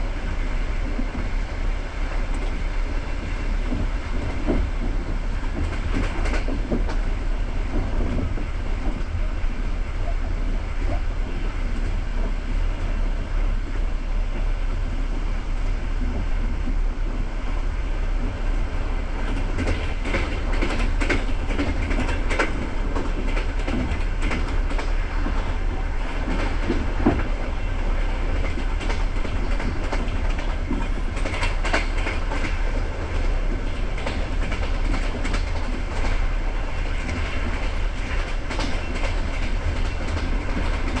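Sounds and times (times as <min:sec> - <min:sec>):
train carriage rumbling: 0:00.0 - 0:41.0
wheels clacking over rail joints: 0:19.2 - 0:41.0.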